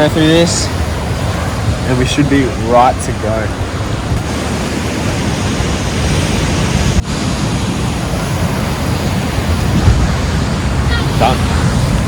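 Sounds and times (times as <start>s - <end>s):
surf washing: 0.0s - 12.0s
wind buffeting microphone: 0.0s - 12.0s.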